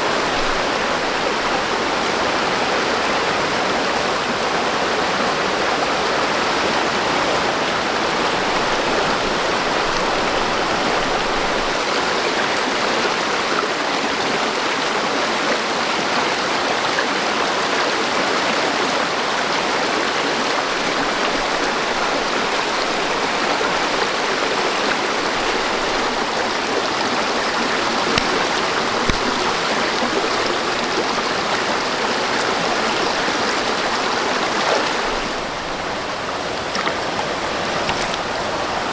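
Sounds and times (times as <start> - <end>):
flowing water rushing: 0.0 - 38.9
small knocks: 27.3 - 31.3.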